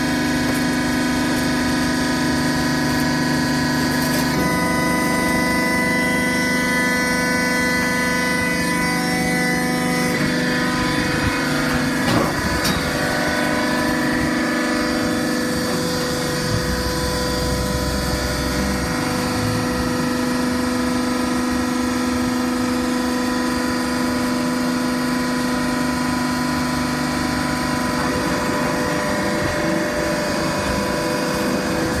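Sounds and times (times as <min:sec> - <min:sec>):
hydraulic press motor whining: 0:00.0 - 0:32.0.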